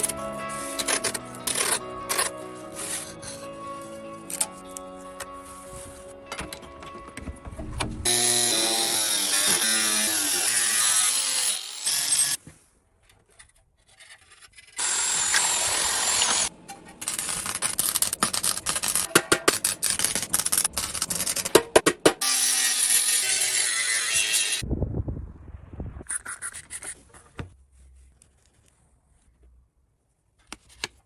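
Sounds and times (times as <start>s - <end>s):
power tool running: 8.0s - 12.4s, 14.8s - 16.5s.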